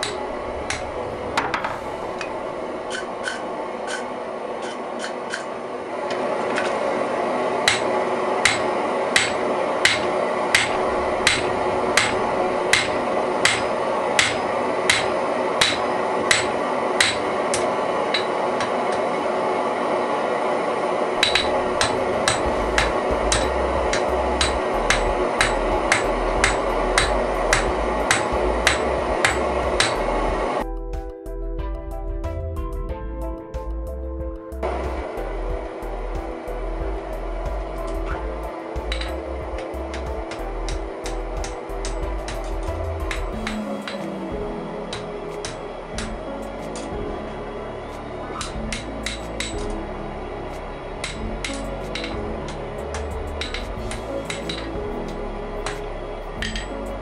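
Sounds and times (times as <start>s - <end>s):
background rush: 0.0s - 4.6s
hammer ringing on anvil: 7.7s - 18.3s, 21.2s - 30.0s.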